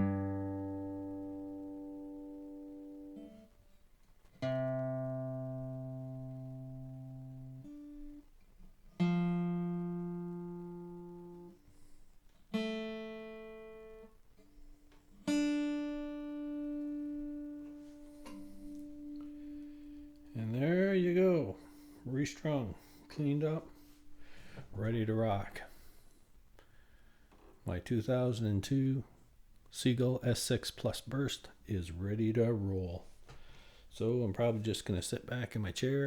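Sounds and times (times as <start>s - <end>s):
acoustic guitar strings plucked: 0.0s - 3.5s, 4.4s - 8.3s, 9.0s - 11.6s, 12.5s - 25.5s.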